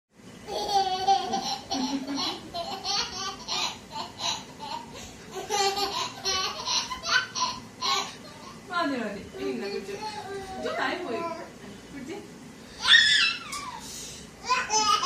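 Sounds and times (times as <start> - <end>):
baby giggling: 0.5 - 8.6.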